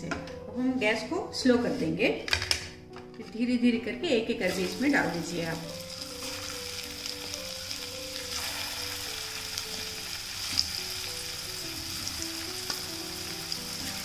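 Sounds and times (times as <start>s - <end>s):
food frying in hot oil: 4.6s - 14.0s.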